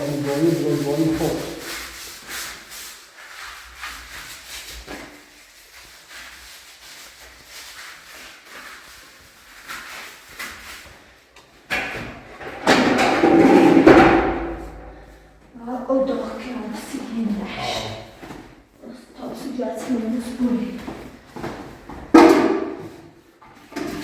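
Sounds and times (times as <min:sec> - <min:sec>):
loud scraping: 0:12.6 - 0:15.4.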